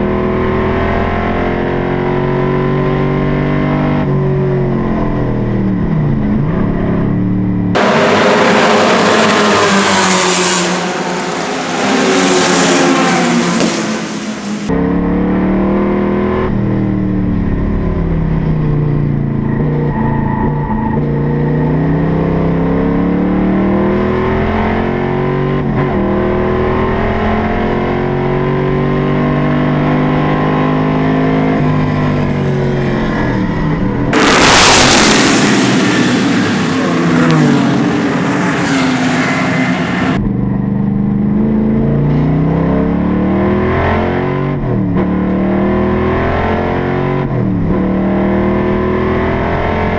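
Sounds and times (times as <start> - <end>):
race car engine revving: 7.7 - 16.4, 19.6 - 40.3.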